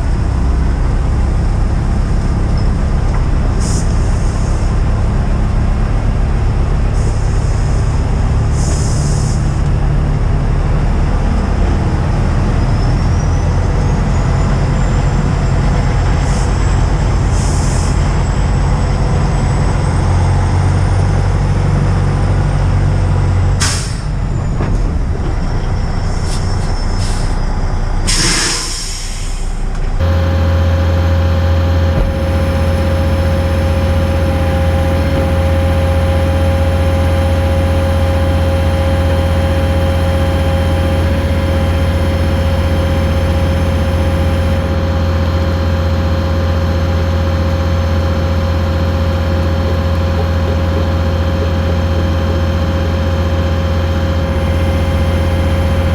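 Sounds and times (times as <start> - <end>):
diesel engine running: 0.0 - 55.9
air hissing: 28.1 - 37.8.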